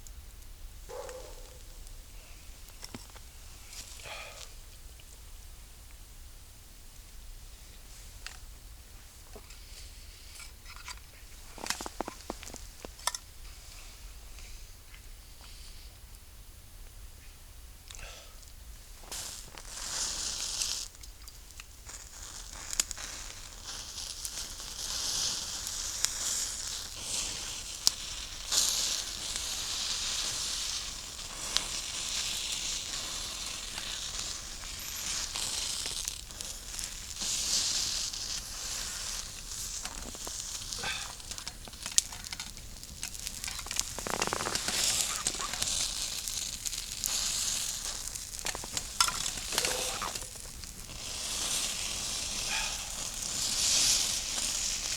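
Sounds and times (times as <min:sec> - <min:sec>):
pork sizzling in a pan: 0:19.0 - 0:54.9
sharp pops of frying fat: 0:20.8 - 0:54.9.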